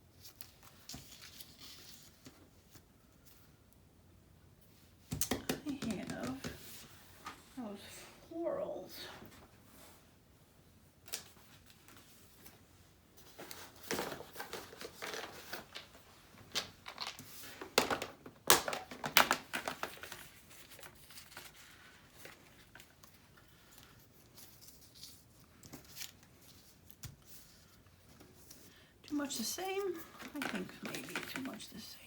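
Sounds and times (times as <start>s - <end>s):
paper rustling and crinkling: 0.1s - 3.6s, 11.1s - 32.0s.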